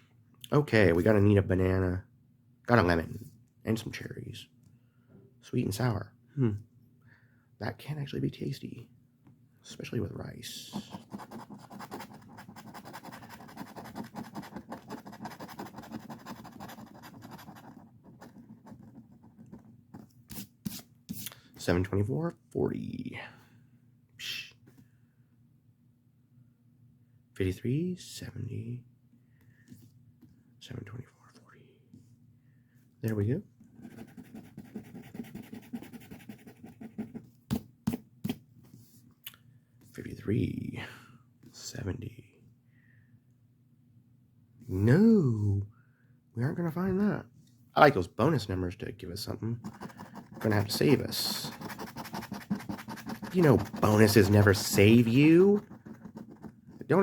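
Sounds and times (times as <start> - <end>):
lottery ticket being scratched: 10.6 - 19.4, 49.6 - 57.0.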